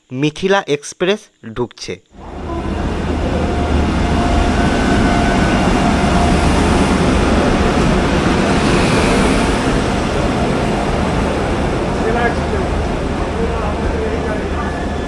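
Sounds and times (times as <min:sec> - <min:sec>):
train wheels rumbling on rail: 0:02.2 - 0:15.0
faint thin squeal: 0:14.3 - 0:15.0.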